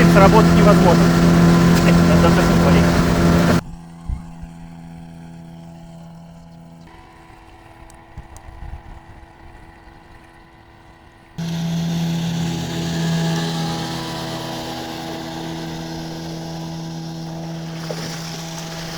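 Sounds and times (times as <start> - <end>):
engine running: 0.0 - 3.6, 11.4 - 18.9.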